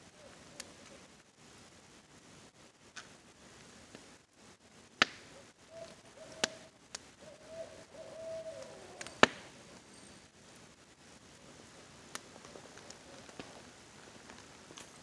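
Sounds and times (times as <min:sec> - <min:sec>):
faint rain hiss: 0:00.0 - 0:15.0
crackling campfire pops: 0:02.9 - 0:07.2, 0:08.5 - 0:09.9, 0:11.4 - 0:15.0
owl hooting: 0:05.3 - 0:10.1.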